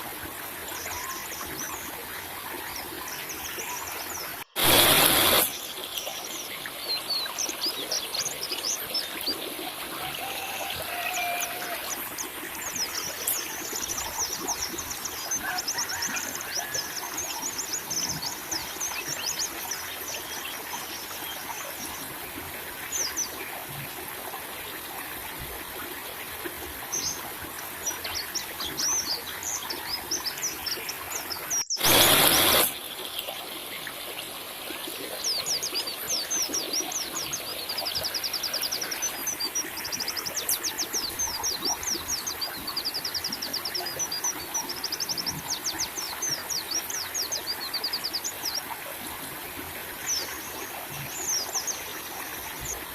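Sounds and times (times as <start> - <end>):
running water trickle: 0.0 - 52.9
loud noise burst: 4.6 - 5.6, 31.8 - 32.8.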